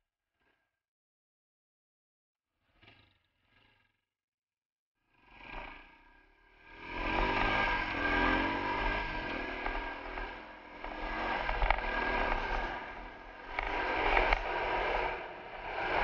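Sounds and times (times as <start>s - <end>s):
dirt bike engine accelerating: 6.6s - 16.0s
wind rushing over microphone: 6.9s - 16.0s.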